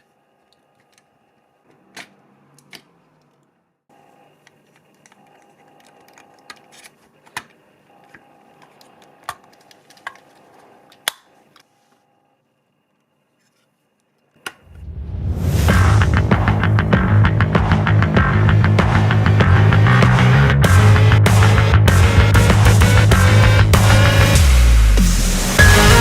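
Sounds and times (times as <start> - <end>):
faint steady hum: 0.0 - 15.3
loud music: 15.4 - 26.0.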